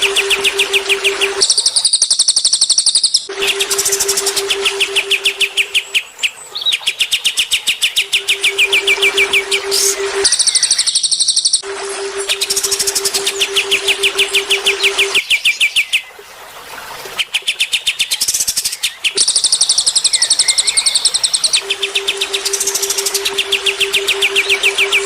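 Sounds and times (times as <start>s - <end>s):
low hum: 0.0s - 1.9s, 3.3s - 6.0s, 8.0s - 10.9s, 11.6s - 15.2s, 21.6s - 25.0s
cage birds chirping: 0.0s - 11.6s, 17.3s - 25.0s.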